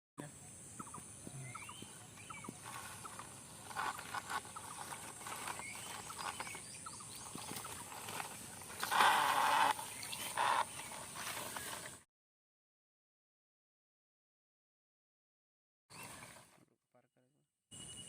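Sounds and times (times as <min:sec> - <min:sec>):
small animals chirping: 0:00.4 - 0:11.1.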